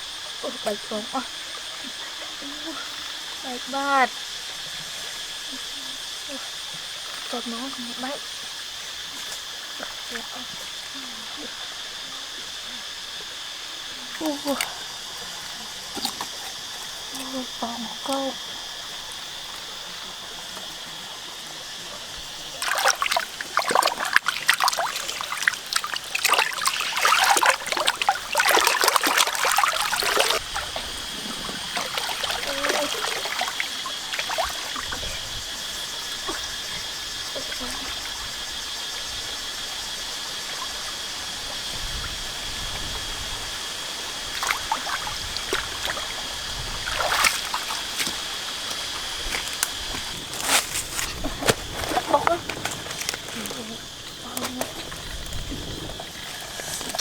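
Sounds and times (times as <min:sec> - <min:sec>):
water splashing and trickling: 0:00.0 - 0:57.0.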